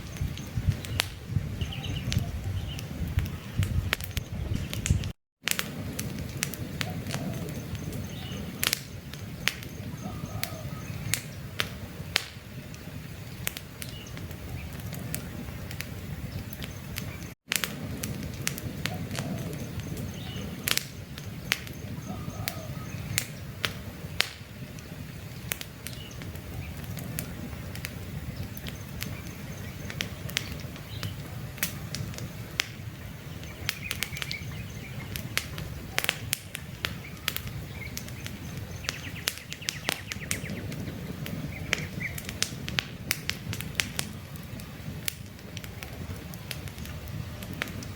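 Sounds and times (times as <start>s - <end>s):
campfire crackling: 0.0s - 47.9s
faint bird chirps: 6.8s - 11.5s, 21.3s - 23.4s, 37.0s - 40.7s.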